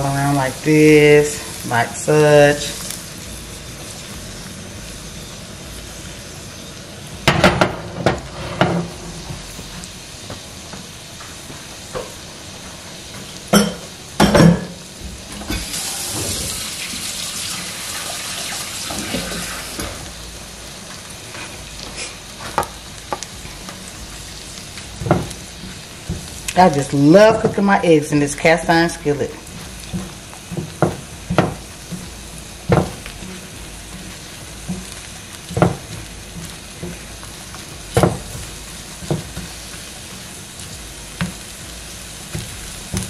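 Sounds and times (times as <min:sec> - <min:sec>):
food sizzling in a skillet: 0:00.0 - 0:43.0
dishes clattering: 0:13.5 - 0:14.8
water running: 0:15.4 - 0:20.1.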